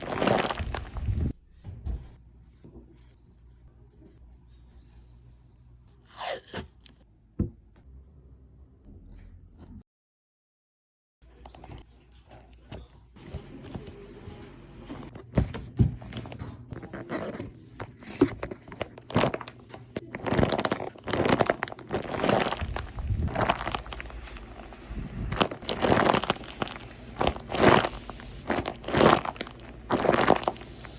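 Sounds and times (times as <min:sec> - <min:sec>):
paper crinkling and rustling: 0:00.0 - 0:01.3, 0:13.2 - 0:30.9.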